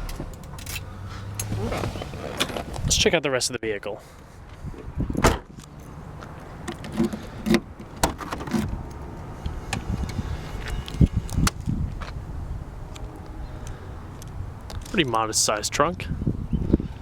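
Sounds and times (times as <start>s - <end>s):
low rumble: 0.0s - 3.1s, 8.7s - 14.7s.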